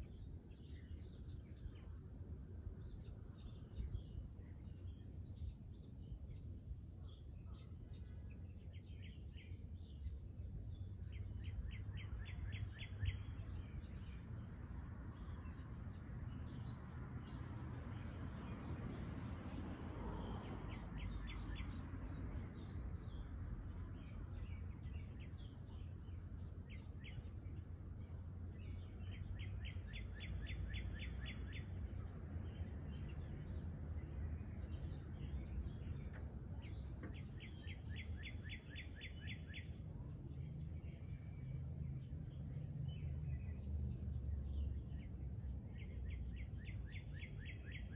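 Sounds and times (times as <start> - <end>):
birds singing rapid trill: 20.4 - 47.9.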